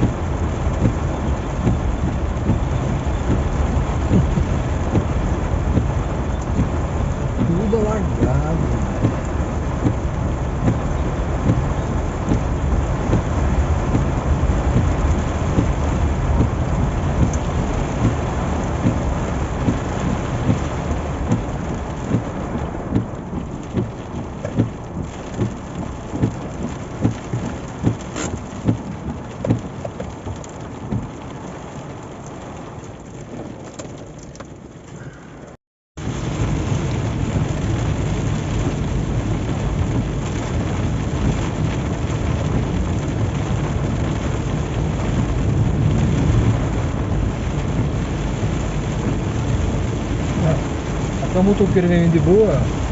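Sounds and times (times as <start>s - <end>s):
heavy rain on a car: 0.0s - 52.9s.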